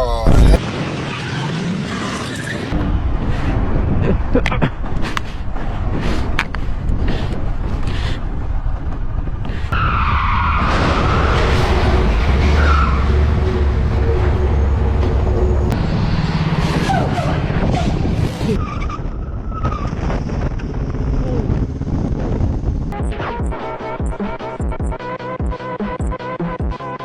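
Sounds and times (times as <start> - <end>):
motorcycle engine and road rumble: 0.6 - 23.0
tyre squeal from braking: 9.8 - 15.8.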